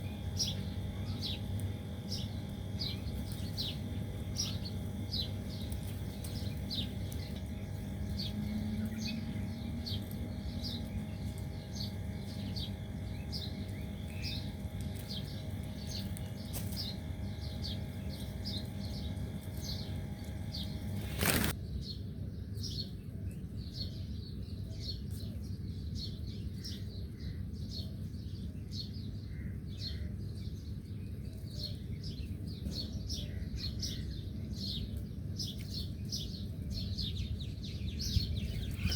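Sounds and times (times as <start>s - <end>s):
small bird chirping: 0.0s - 21.6s, 36.8s - 38.9s.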